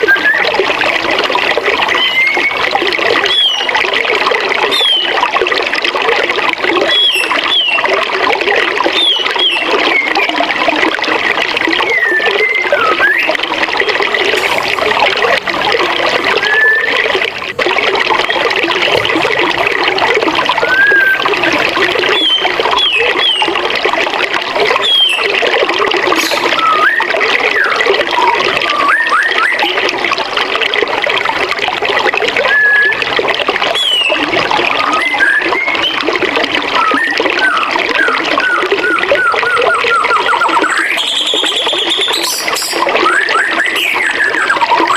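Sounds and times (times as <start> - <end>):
songbirds whistling: 0.0 - 0.6, 1.9 - 3.8, 4.7 - 5.2, 6.8 - 7.9, 8.9 - 10.4, 11.8 - 14.0, 16.3 - 17.2, 20.5 - 23.6, 24.8 - 25.4, 26.2 - 29.8, 32.4 - 33.0, 33.7 - 34.2, 34.8 - 36.1, 36.7 - 44.9
bird rapid repeated notes: 20.6 - 23.5, 26.2 - 26.9, 39.2 - 44.9.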